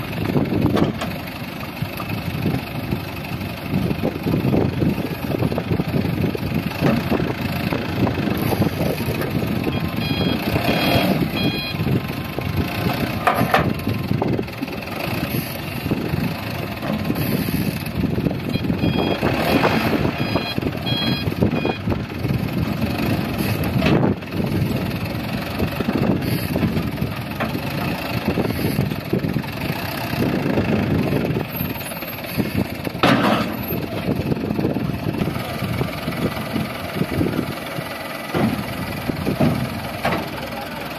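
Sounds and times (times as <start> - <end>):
heavy diesel engines under load: 0.0 - 40.9
reversing alarm beeping: 9.7 - 11.9, 18.5 - 19.3, 20.0 - 22.0.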